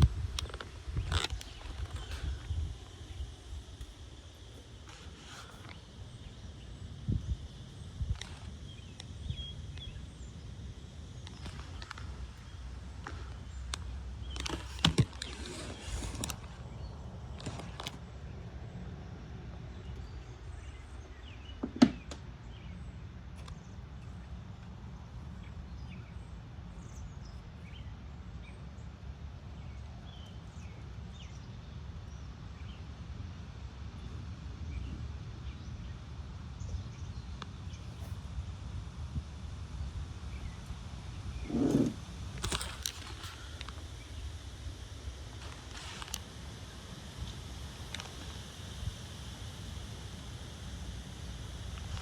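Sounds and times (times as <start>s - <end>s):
wind buffeting microphone: 0.0s - 4.5s, 6.8s - 9.5s, 37.6s - 43.4s.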